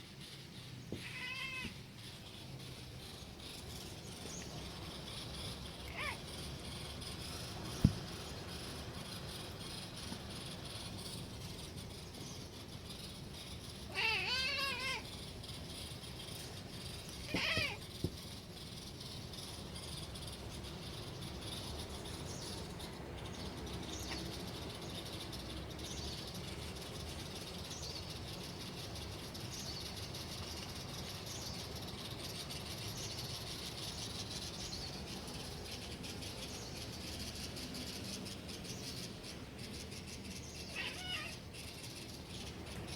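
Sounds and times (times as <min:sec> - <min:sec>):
cat chirping meows: 0:01.0 - 0:01.8, 0:05.8 - 0:06.3, 0:13.9 - 0:15.1, 0:17.2 - 0:17.8, 0:40.6 - 0:41.4.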